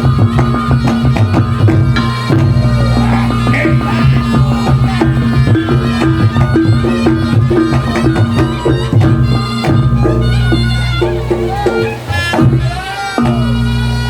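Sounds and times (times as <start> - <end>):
hand drum strokes: 0.0 - 14.0
shrill reedy pipe melody: 0.0 - 14.0
low gong tones: 1.7 - 6.9.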